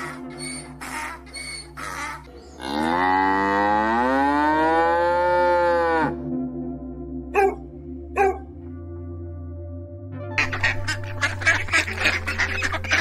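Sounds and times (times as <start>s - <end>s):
large farm animal calling: 0.0s - 6.1s, 7.4s - 7.6s, 10.4s - 13.0s.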